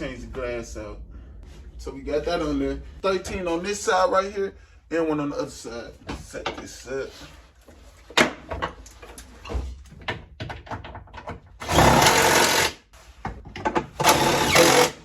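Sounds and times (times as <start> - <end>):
cordless drill driving screw: 11.6 - 12.8, 14.0 - 15.0.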